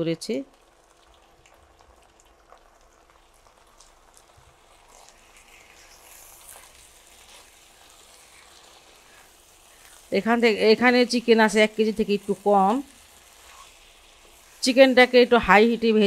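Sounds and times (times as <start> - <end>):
chicken sizzling in oil: 0.0 - 16.0
wooden spatula stirring: 12.3 - 14.8.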